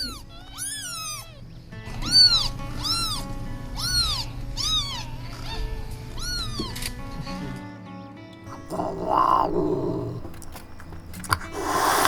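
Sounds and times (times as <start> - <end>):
soft background music: 0.0 - 12.0
kitten meowing: 8.5 - 12.0.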